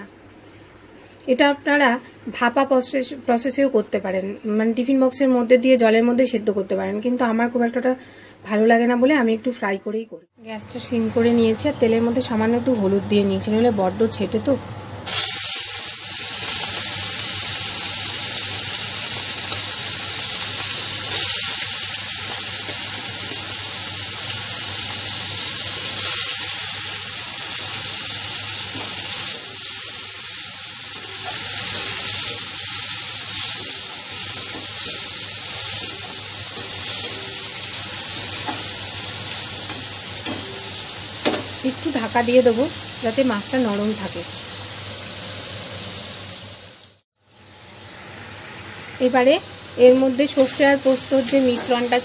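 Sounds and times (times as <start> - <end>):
spatula turning prawns: 15.1 - 41.8, 50.1 - 52.0
prawns sizzling in hot oil: 15.1 - 52.0.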